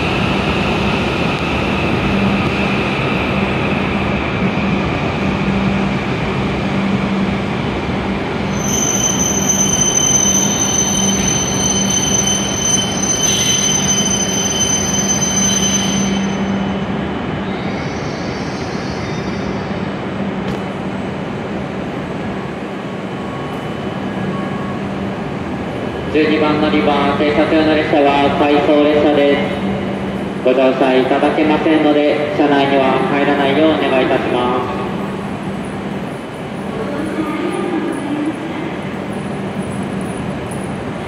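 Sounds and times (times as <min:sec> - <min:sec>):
train running noise: 0:00.0 - 0:41.0
high-pitched brake squeal: 0:08.5 - 0:19.6.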